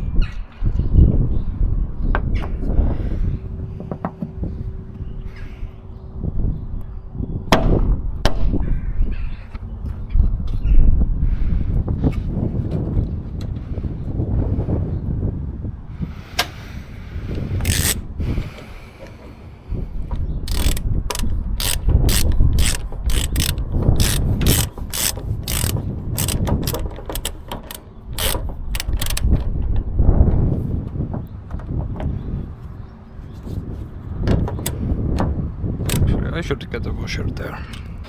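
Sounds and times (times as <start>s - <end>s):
wind rumble on microphone: 0.0s - 27.3s, 28.0s - 38.0s
metallic ratchet clicks: 17.6s - 18.0s, 20.5s - 29.5s, 35.9s - 36.1s.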